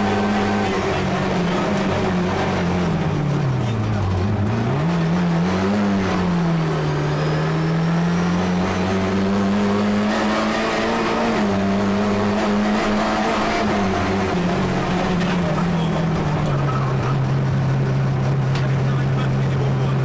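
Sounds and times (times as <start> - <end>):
car engine at high revs: 0.0 - 20.0.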